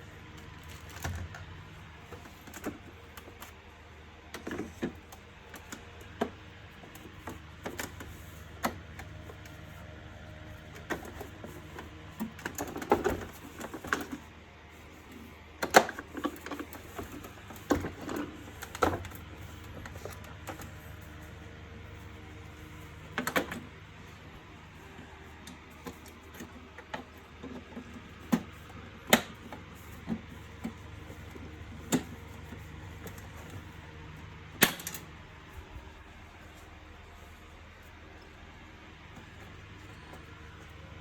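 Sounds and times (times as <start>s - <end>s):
plastic parts clicking and knocking: 0.4s - 3.6s, 10.8s - 14.3s, 15.6s - 20.8s, 23.1s - 23.7s, 25.4s - 33.6s, 34.6s - 35.1s.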